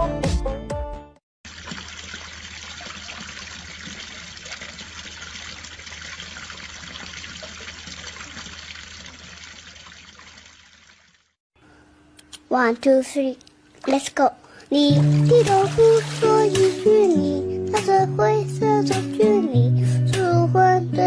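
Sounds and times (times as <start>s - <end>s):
running water rushing: 1.5s - 11.4s, 14.8s - 17.2s.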